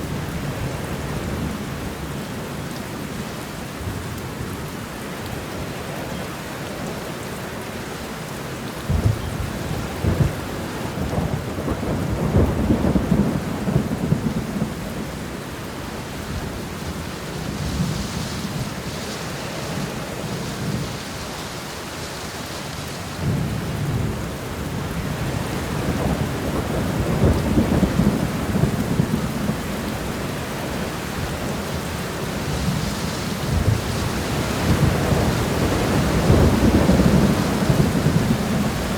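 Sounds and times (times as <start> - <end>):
steady rain shower: 0.0 - 38.9
low rolls of thunder: 8.7 - 21.1, 23.2 - 38.9.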